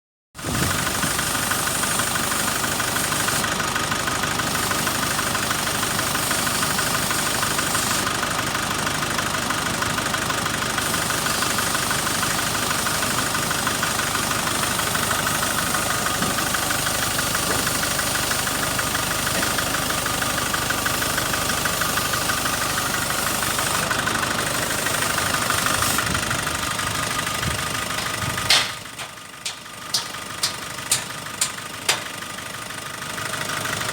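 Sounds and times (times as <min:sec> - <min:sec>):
diesel engine idling: 0:00.4 - 0:33.9
sharp click: 0:28.0 - 0:32.1.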